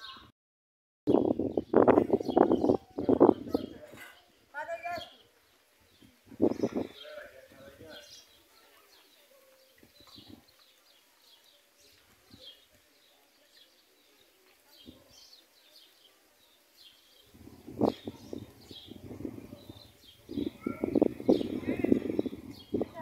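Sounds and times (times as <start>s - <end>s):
small birds chirping: 1.1s - 23.0s.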